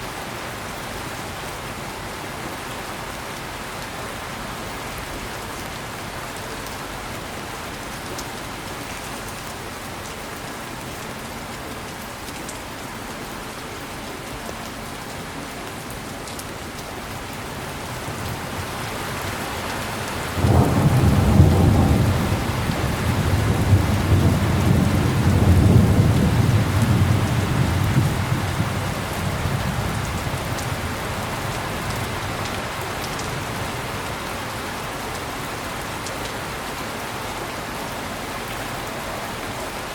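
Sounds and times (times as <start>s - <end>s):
heavy rain falling: 0.0s - 39.9s
thunder clap and rumble: 19.9s - 31.0s.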